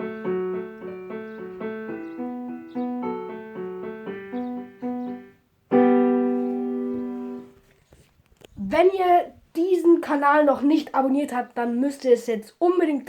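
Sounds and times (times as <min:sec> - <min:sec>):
electronic keyboard piano melody: 0:00.0 - 0:07.6
keyboard chord struck and held: 0:00.0 - 0:07.6.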